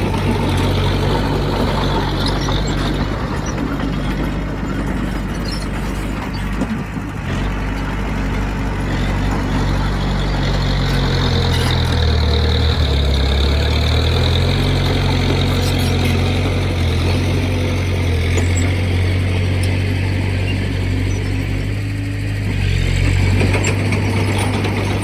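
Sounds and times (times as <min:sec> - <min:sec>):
heavy diesel engine running: 0:00.0 - 0:25.0.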